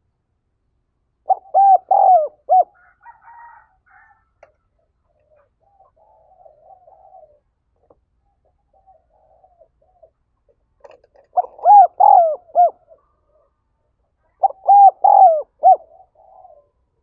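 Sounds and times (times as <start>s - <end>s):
dove cooing: 1.2s - 4.5s, 5.1s - 10.3s, 10.9s - 13.6s, 14.2s - 17.0s
faint bird twittering: 5.1s - 7.5s.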